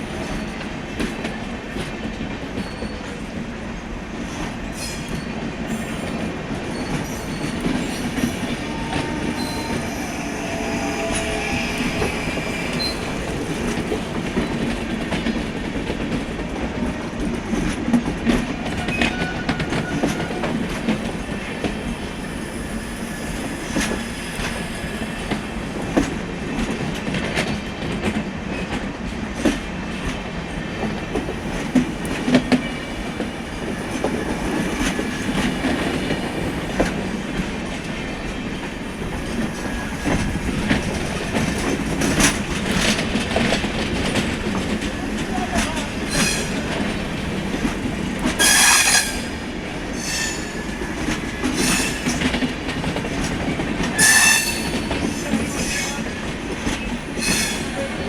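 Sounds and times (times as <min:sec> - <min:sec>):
high-pitched wheel squeals: 0:06.7 - 0:13.3
train wheels clattering over rail joints: 0:23.3 - 0:58.0.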